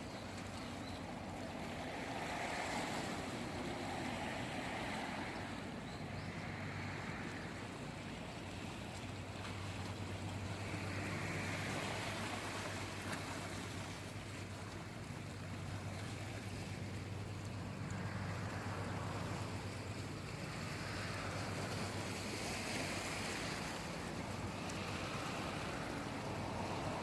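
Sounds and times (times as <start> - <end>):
sea waves washing: 0.0 - 27.0.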